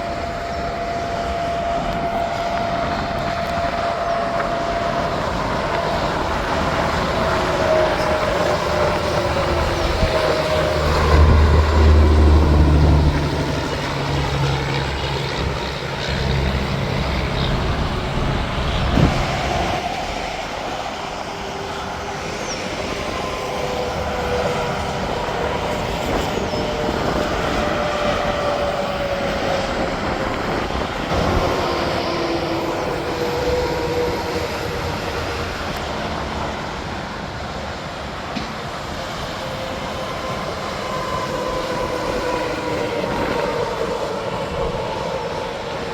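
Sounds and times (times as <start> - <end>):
highway traffic passing: 0.1 - 38.2
heavy truck engine: 5.0 - 20.2.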